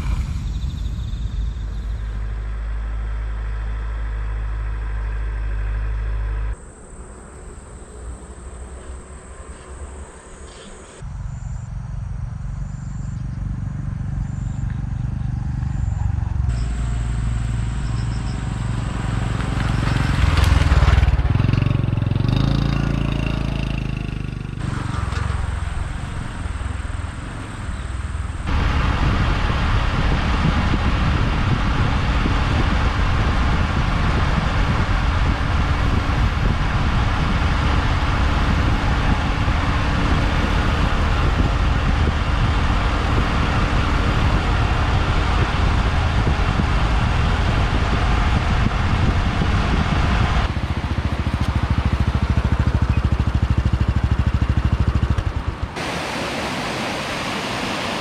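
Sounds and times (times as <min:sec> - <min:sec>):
wind noise: 0:00.0 - 0:02.9, 0:24.6 - 0:58.0
small motorcycle engine running: 0:13.2 - 0:55.8.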